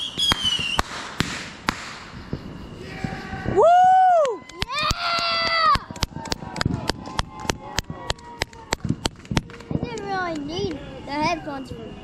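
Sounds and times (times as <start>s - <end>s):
fireworks popping: 0.0s - 3.2s, 4.4s - 10.8s.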